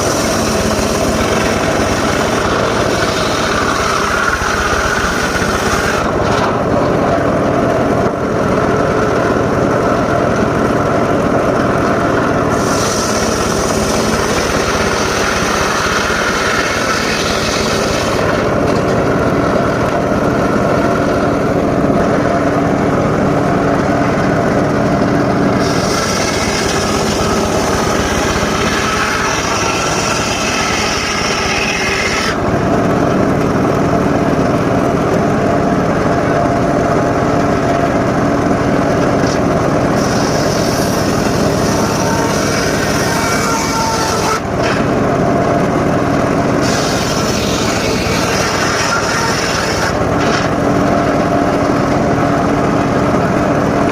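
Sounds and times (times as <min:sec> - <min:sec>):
saw blade cutting wood: 0:00.0 - 0:06.9, 0:12.5 - 0:20.0, 0:25.4 - 0:32.4, 0:38.9 - 0:44.9, 0:46.6 - 0:50.6
circular saw humming: 0:00.0 - 0:45.4, 0:46.0 - 0:53.9.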